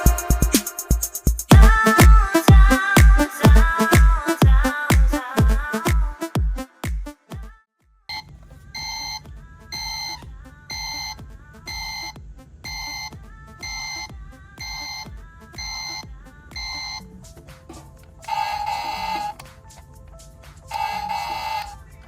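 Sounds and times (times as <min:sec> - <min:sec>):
dance music beats: 0:00.0 - 0:22.0
electronic alarm beeping: 0:08.1 - 0:17.1, 0:17.7 - 0:19.4, 0:20.7 - 0:21.8.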